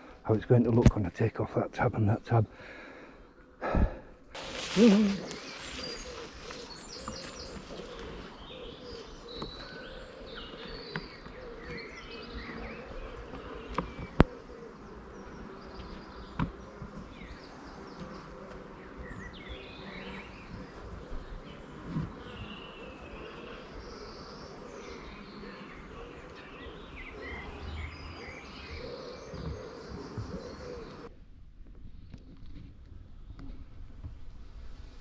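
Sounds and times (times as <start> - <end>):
bees buzzing: 4.4 - 31.1
birds chirping: 4.4 - 31.1.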